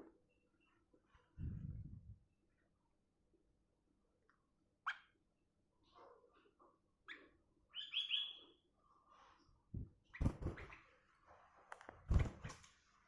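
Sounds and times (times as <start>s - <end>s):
bird chirping: 4.8s - 5.2s, 7.0s - 8.6s.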